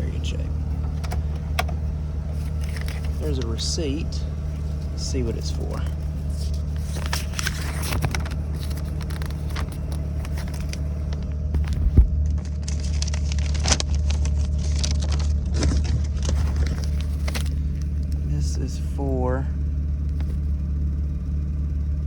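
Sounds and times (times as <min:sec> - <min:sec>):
paper crinkling and rustling: 0:00.0 - 0:18.2, 0:19.9 - 0:20.6
steady low hum: 0:00.0 - 0:22.0.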